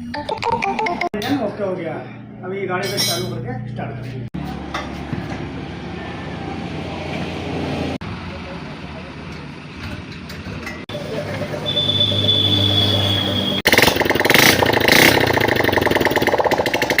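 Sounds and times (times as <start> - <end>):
motorcycle engine running: 3.4 - 17.0.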